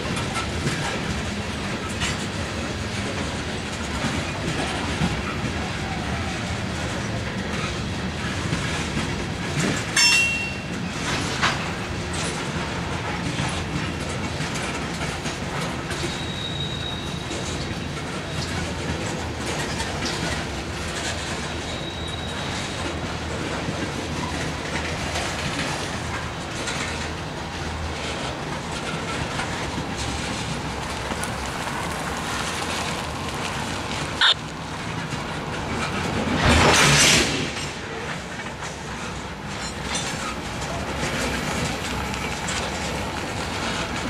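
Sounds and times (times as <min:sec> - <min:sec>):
freight train rumbling past: 0:00.0 - 0:44.0
wheels clacking over rail joints: 0:00.0 - 0:44.0
sharp squeak: 0:16.0 - 0:17.3.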